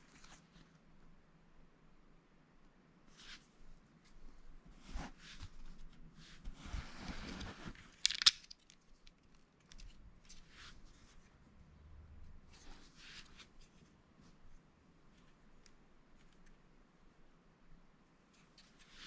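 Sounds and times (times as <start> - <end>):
rummaging through plastic bricks: 8.0 - 8.5
plastic bricks clicking together: 8.0 - 9.8.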